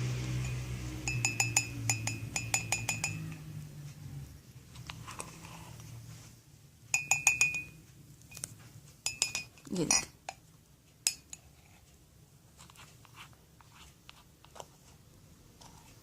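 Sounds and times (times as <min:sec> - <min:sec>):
spoon clinking against a cup: 0:00.3 - 0:03.5, 0:06.9 - 0:07.8, 0:09.0 - 0:10.4, 0:11.0 - 0:11.5.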